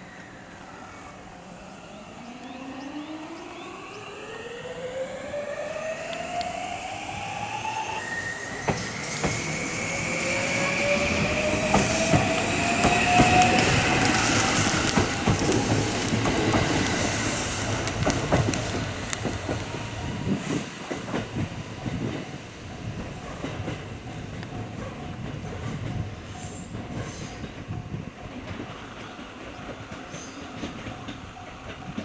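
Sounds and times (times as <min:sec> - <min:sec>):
train wheels clicking over rail joints: 0:08.6 - 0:10.0, 0:11.1 - 0:32.0.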